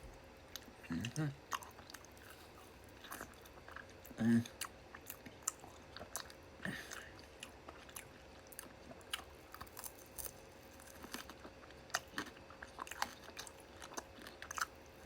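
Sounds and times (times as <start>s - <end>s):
person chewing with wet smacks: 0.4s - 15.0s.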